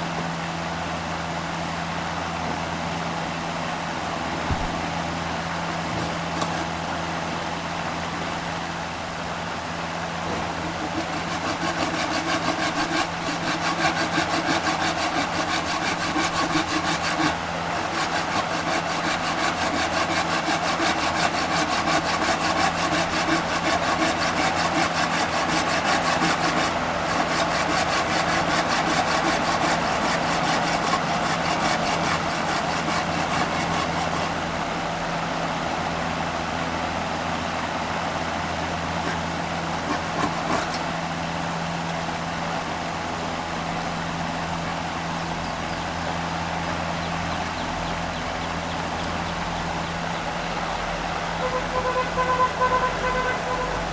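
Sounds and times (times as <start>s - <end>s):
steady machine hum: 0.0s - 53.9s
saw scraping wood: 4.2s - 7.6s, 10.1s - 34.7s, 38.7s - 53.7s.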